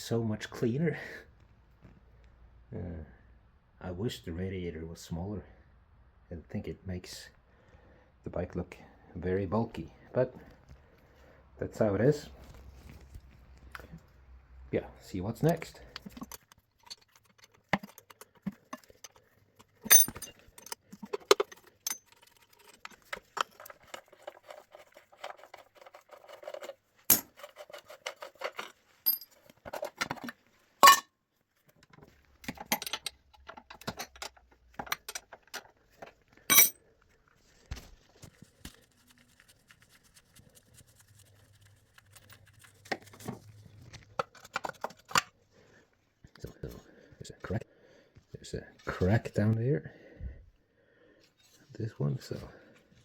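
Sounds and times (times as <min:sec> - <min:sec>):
metallic clinks of hand tools: 0:19.9 - 0:20.8.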